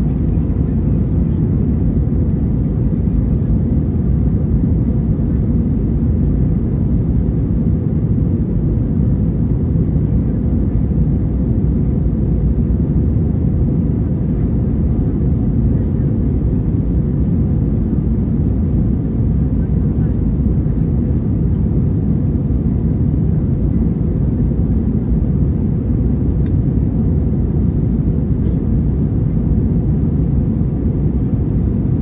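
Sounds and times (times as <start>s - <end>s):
airliner cabin engine rumble: 0.0s - 32.0s.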